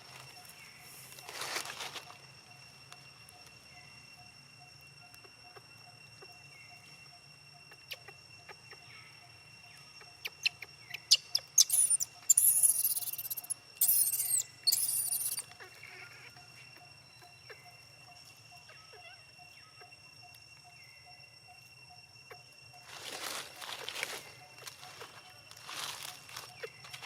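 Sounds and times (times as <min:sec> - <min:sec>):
baby monkey squealing: 0:11.1 - 0:15.5.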